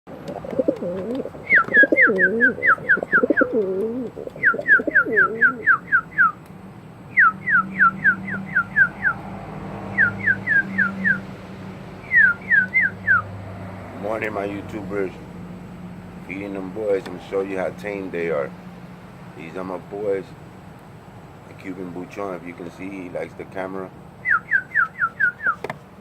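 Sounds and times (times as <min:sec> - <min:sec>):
pigeons cooing: 0:00.1 - 0:06.3
bird whistling falling notes: 0:01.1 - 0:03.6, 0:04.3 - 0:06.4.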